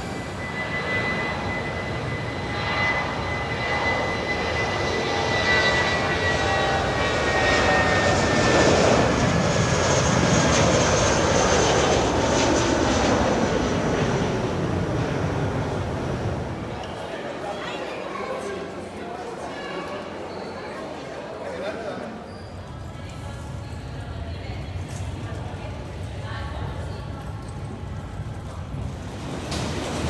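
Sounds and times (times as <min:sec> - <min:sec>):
jet engines whining: 0:00.0 - 0:17.1, 0:29.0 - 0:30.0.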